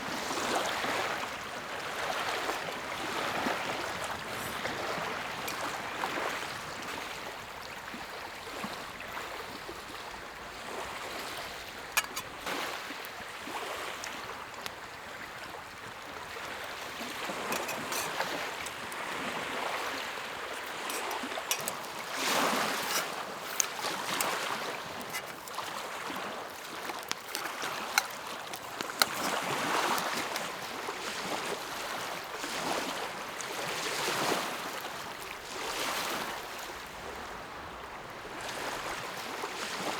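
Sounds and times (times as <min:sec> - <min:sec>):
lake waves lapping on shore: 0:00.0 - 0:39.9.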